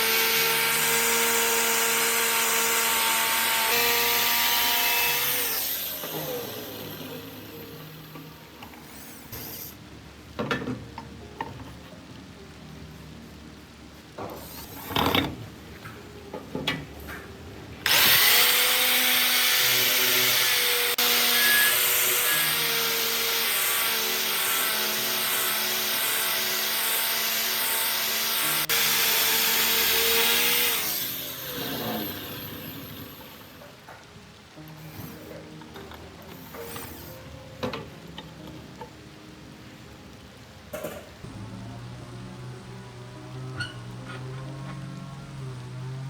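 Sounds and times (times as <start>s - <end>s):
electric power tool whining: 0.0s - 7.7s, 17.8s - 33.5s.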